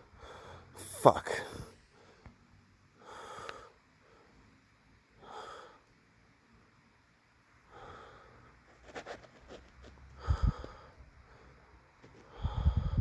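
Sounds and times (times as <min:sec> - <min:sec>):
man breathing through nose: 0:00.0 - 0:02.3, 0:03.0 - 0:04.5, 0:05.2 - 0:05.9, 0:07.6 - 0:08.7, 0:10.2 - 0:13.0.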